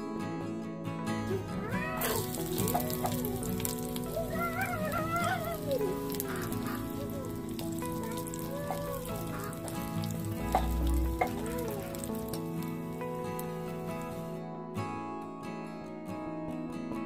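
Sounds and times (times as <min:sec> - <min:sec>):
onion and garlic sizzling in oil: 0:01.8 - 0:14.3.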